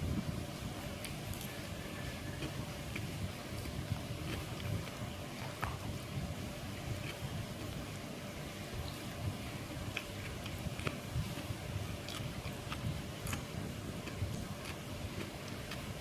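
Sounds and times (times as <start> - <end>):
low background rumble: 0.0 - 16.0
person chewing food: 1.0 - 6.0, 6.8 - 7.9, 9.8 - 16.0.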